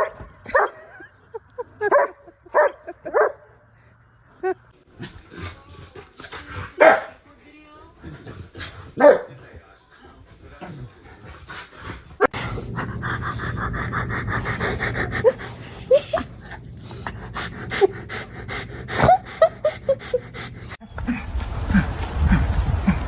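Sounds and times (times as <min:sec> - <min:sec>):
dog panting: 0:05.2 - 0:20.8.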